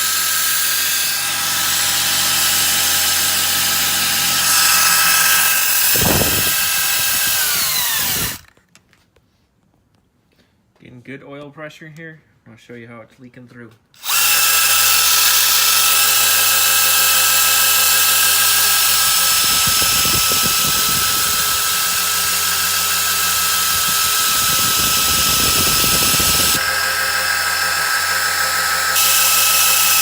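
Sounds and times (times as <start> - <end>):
electric drill whine: 0.0 - 8.5, 14.0 - 30.0
rough uneven grinding: 0.0 - 8.5, 14.0 - 30.0.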